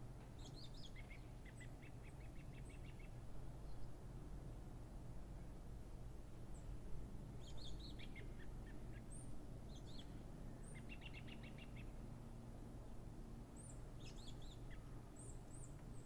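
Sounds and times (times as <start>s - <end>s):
small birds chirping: 0.4s - 3.9s, 7.4s - 12.0s, 13.6s - 16.0s.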